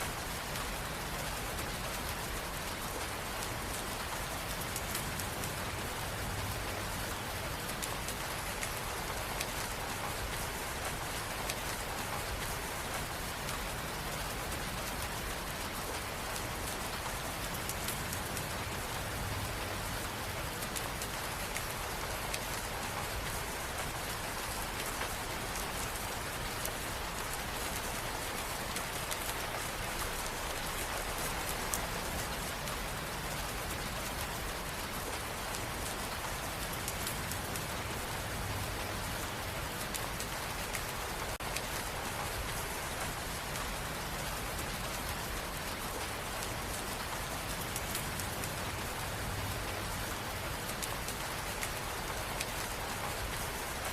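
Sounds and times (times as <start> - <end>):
rain pattering on a surface: 0.0 - 53.9.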